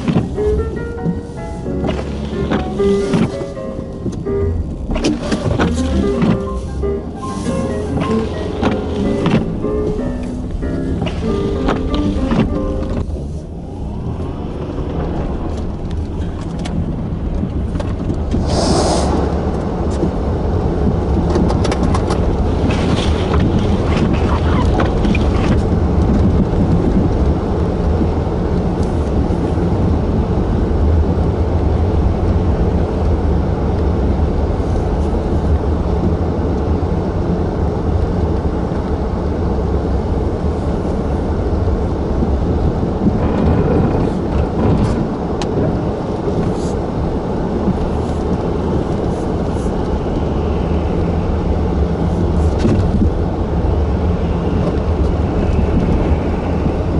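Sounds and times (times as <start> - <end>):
wind blowing on microphone: 14.3 - 31.0.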